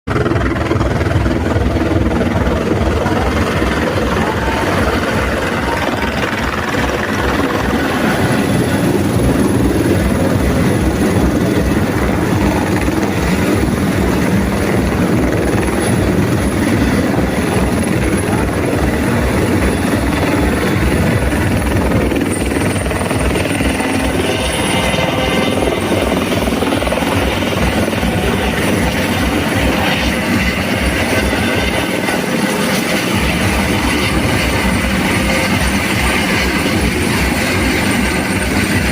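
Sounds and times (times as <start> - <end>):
helicopter engine noise: 0.1 - 38.9
helicopter rotor chopping: 0.1 - 38.9.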